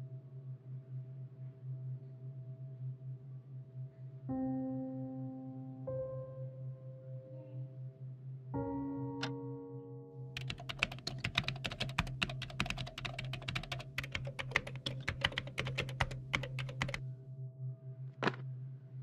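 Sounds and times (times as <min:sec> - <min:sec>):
fast typing on keyboard: 0:10.4 - 0:17.0.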